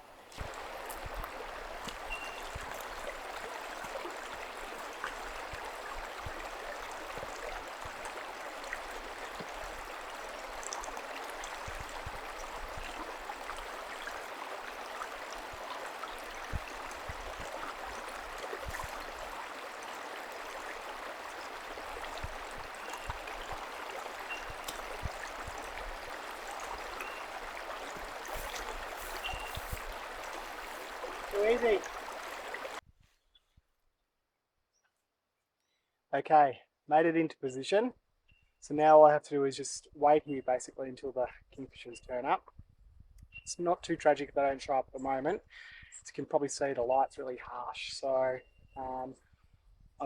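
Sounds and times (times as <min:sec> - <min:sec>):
creek water rushing: 0:00.0 - 0:32.8.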